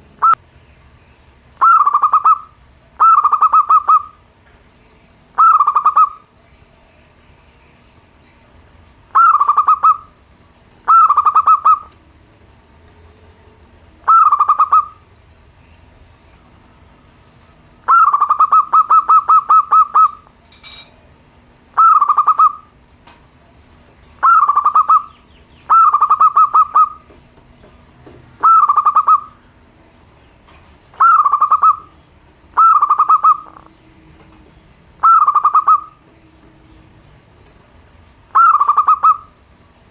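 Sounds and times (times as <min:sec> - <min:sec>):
dove cooing song: 0:00.0 - 0:00.4, 0:01.6 - 0:04.3, 0:05.4 - 0:07.2, 0:09.1 - 0:12.3, 0:13.9 - 0:15.1, 0:17.8 - 0:20.4, 0:21.0 - 0:22.8, 0:23.4 - 0:29.8, 0:30.9 - 0:37.0, 0:37.6 - 0:39.6.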